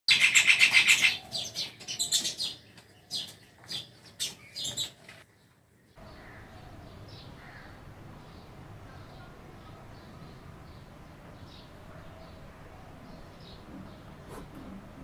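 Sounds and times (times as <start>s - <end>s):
bird trilling and chirping: 0.1s - 5.0s
faint outdoor background hiss: 0.1s - 15.0s.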